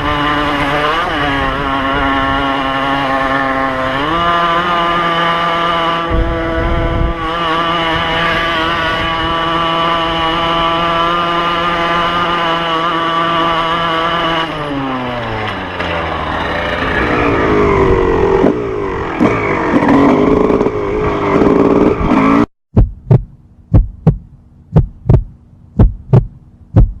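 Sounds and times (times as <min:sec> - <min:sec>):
engine revving high: 0:00.0 - 0:22.5
heartbeat-like double thump: 0:22.7 - 0:27.0.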